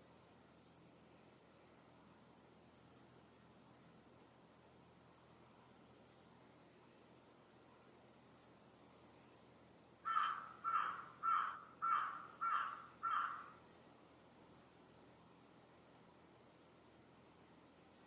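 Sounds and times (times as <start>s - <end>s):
small birds chirping: 0.4s - 1.2s, 2.6s - 3.4s, 4.8s - 6.6s, 8.4s - 9.4s, 10.0s - 13.6s, 14.4s - 17.6s
bird harsh calls: 10.1s - 13.6s.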